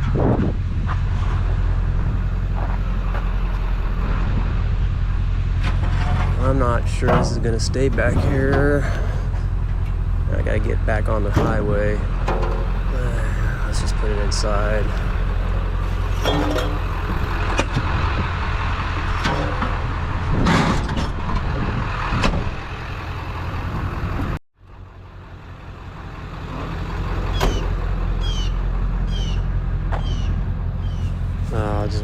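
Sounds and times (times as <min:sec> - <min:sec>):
vehicle engine humming: 0:00.0 - 0:32.0
metal items knocking and rattling: 0:12.2 - 0:12.8.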